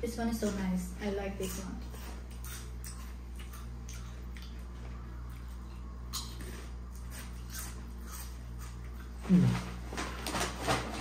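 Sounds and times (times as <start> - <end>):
steady low hum: 0.0 - 11.0
crunching chips being chewed: 1.4 - 9.6.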